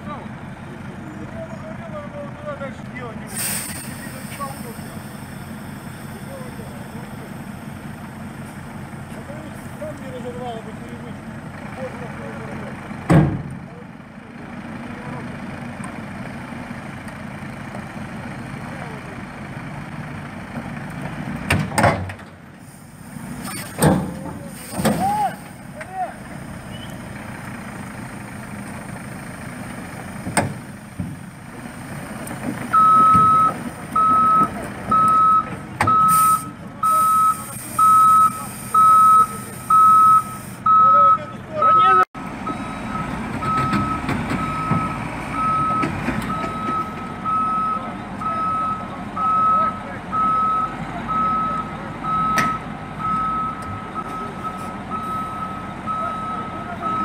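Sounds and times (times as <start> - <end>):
truck engine running: 0.0 - 57.0
reversing alarm beeping: 32.7 - 57.0.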